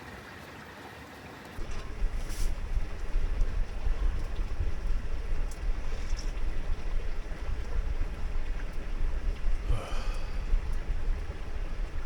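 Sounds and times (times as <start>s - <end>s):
stream running: 0.0s - 12.0s
wind rumble on microphone: 1.6s - 12.0s.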